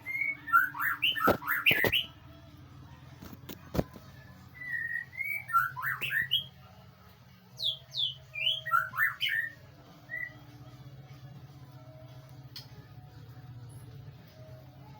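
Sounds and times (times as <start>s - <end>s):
bird singing whistled notes: 0.0s - 2.2s, 4.5s - 6.6s, 7.6s - 10.5s.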